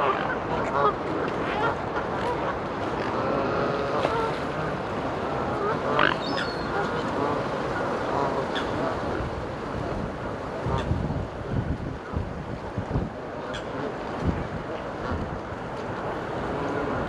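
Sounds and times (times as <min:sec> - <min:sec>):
ducks calling: 0:01.6 - 0:09.3.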